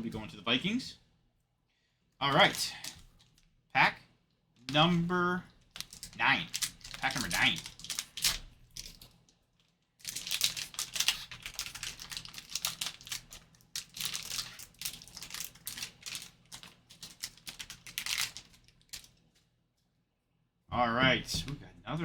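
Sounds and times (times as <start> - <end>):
card wrapper crinkling: 2.3 - 3.5, 5.6 - 19.3.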